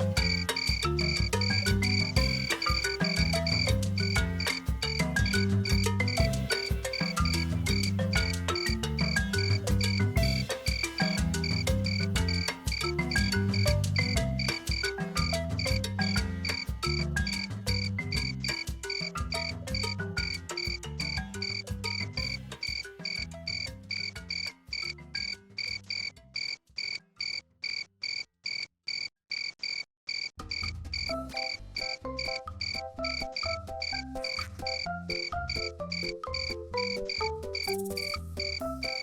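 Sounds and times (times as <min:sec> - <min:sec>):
lower-pitched insect notes: 0:37.1 - 0:39.0.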